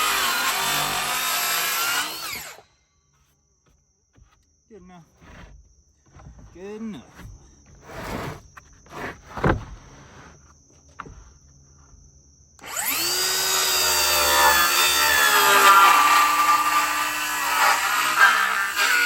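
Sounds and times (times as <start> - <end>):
circular saw cutting wood: 0.0 - 2.6, 12.6 - 19.0.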